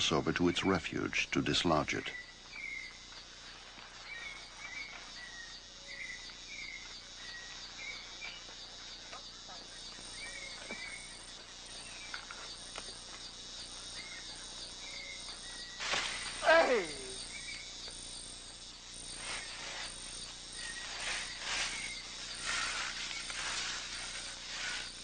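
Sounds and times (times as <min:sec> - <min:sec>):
insects pulsing chorus: 0:00.0 - 0:25.0
short chirping calls: 0:14.0 - 0:17.8.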